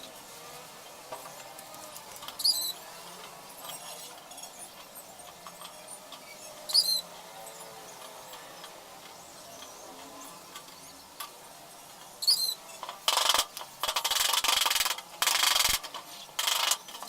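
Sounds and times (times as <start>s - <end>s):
high-pitched chirping squeaks: 2.4s - 2.8s, 6.2s - 7.1s, 12.2s - 12.7s.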